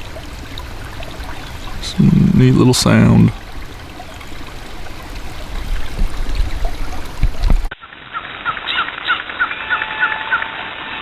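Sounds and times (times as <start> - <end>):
water trickling: 0.0 - 7.7.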